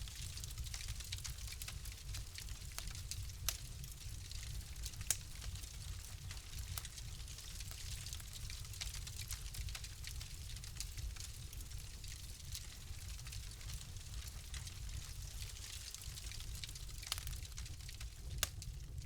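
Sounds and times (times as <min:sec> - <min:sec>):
fireplace fire crackling: 0:00.0 - 0:19.0.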